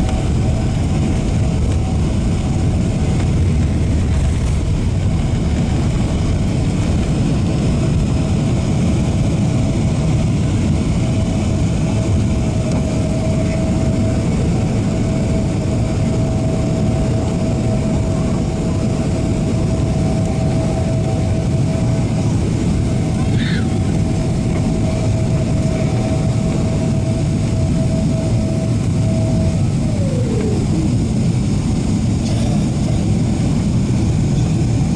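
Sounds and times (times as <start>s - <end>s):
airplane cabin engine roar: 0.0s - 34.9s
thin steady whine: 0.0s - 34.9s.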